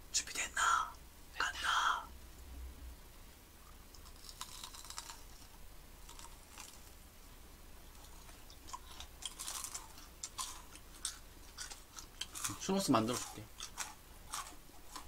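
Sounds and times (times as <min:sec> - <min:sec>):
people chewing: 0:03.6 - 0:06.9, 0:07.9 - 0:15.0.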